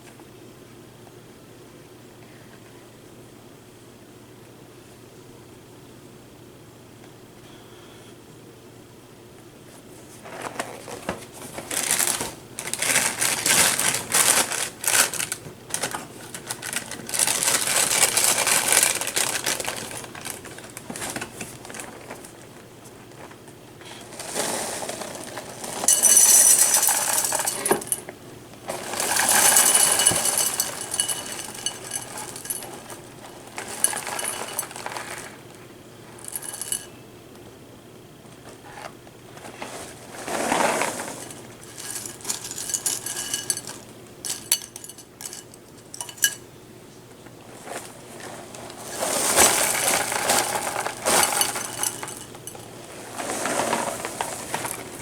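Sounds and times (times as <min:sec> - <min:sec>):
metal spoon clinking on a bowl: 0:29.3 - 0:33.0, 0:41.8 - 0:46.4.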